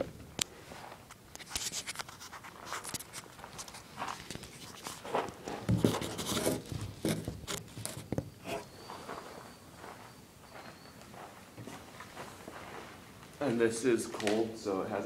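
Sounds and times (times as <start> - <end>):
rustling: 0.6 - 10.1.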